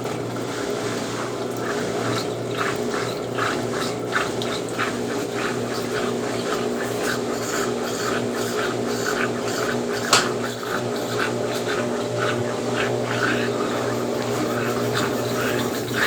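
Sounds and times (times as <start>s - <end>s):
washing machine motor humming: 0.0s - 16.0s
water swishing rhythmically: 0.0s - 16.0s.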